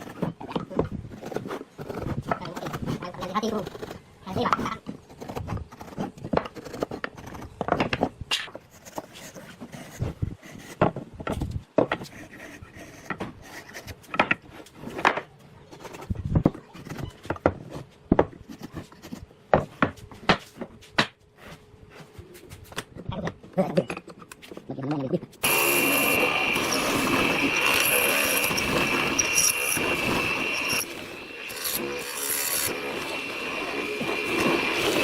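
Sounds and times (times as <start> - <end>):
wooden pieces knocking and scraping: 14.0 - 18.9.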